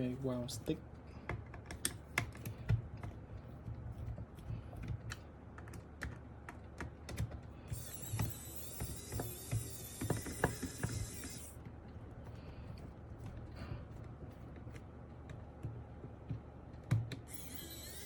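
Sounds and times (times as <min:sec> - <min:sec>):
electric screwdriver whirring: 0:07.7 - 0:11.6, 0:17.3 - 0:18.0.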